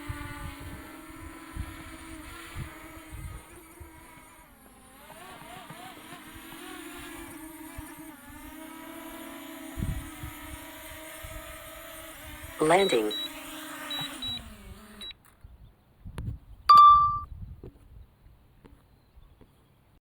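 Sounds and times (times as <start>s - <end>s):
drone propellers whining: 12.0s - 15.2s
wind thumps on microphone: 16.0s - 16.6s.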